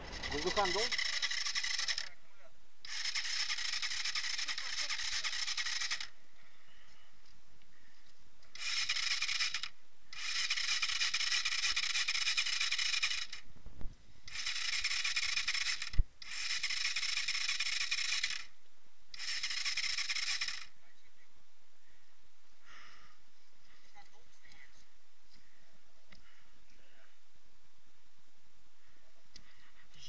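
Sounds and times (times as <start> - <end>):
motorcycle starter cranking: 0.0 - 2.1, 2.9 - 6.1, 8.5 - 13.4, 14.3 - 18.5, 19.2 - 20.7.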